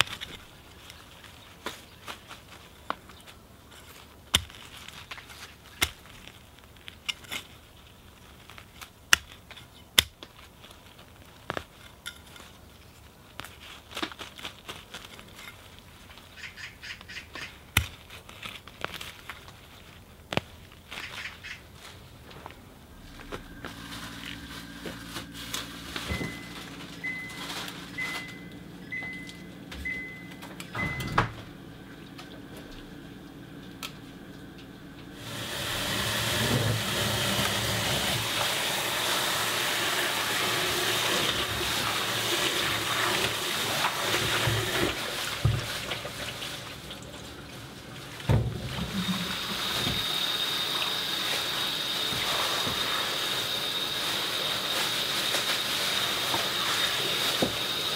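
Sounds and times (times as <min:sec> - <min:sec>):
leaves swished in water: 0:18.0 - 0:28.4, 0:35.2 - 0:57.9
short high beeps: 0:26.0 - 0:31.2.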